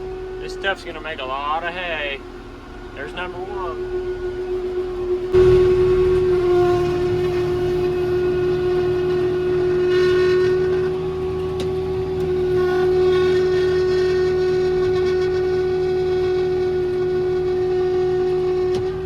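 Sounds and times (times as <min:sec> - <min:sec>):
tractor engine running: 0:00.0 - 0:15.1
baler high whine: 0:00.0 - 0:19.0.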